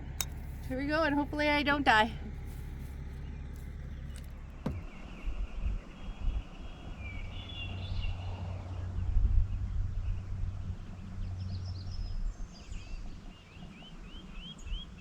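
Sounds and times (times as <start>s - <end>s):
low bumps: 0.0s - 6.4s
birds calling faintly: 0.0s - 15.0s
low outdoor rumble: 0.0s - 15.0s.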